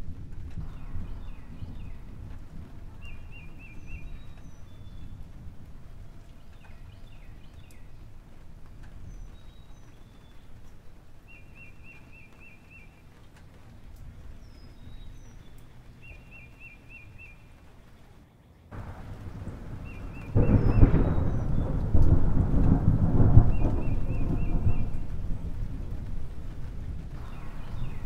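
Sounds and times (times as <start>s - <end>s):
birds chirping: 2.9s - 8.1s, 14.2s - 25.6s, 27.1s - 28.0s
low steady rumble: 18.7s - 28.0s.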